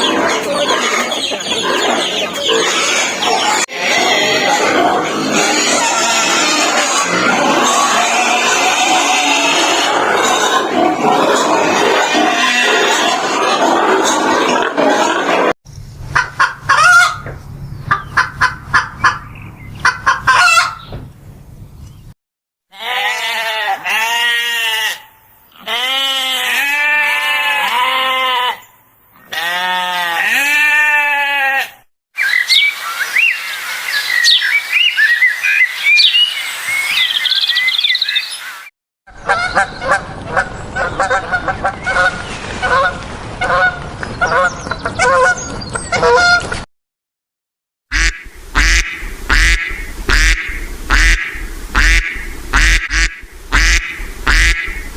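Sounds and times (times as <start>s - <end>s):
poultry honking: 1.4s - 13.2s, 16.2s - 20.9s, 22.7s - 31.8s, 39.2s - 45.4s, 46.0s - 46.5s, 47.9s - 54.9s.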